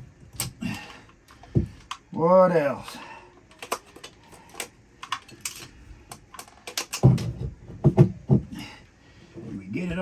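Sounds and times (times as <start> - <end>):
tools clicking and tapping: 3.4 - 7.4.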